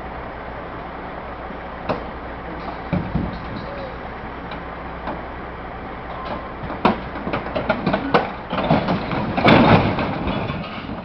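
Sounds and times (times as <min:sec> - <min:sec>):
heavy engine running: 0:00.0 - 0:11.0
metallic knocks and clanks: 0:02.6 - 0:04.0, 0:06.1 - 0:11.0.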